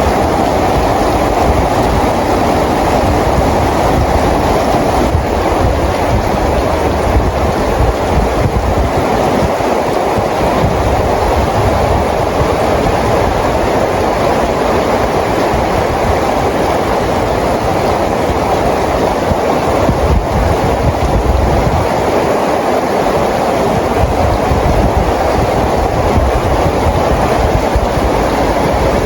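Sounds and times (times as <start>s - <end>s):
steady rain: 0.0s - 29.0s.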